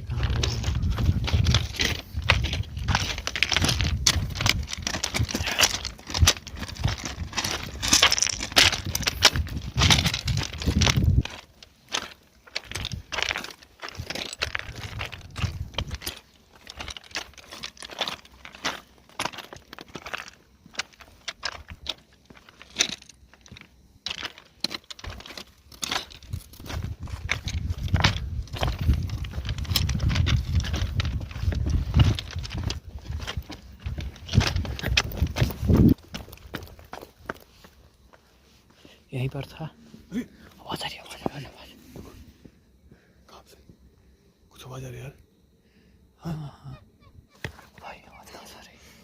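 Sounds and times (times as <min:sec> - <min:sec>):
crackles and clicks: 0:00.0 - 0:37.5
footsteps crunching on loose ground: 0:00.0 - 0:43.0, 0:47.3 - 0:48.2.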